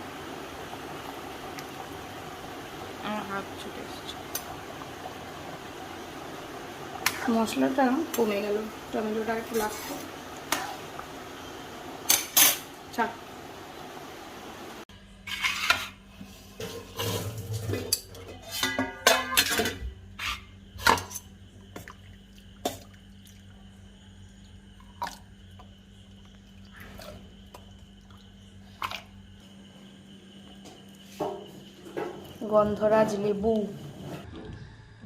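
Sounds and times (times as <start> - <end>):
utensils clinking against pots: 12.1 - 12.7, 16.6 - 21.3.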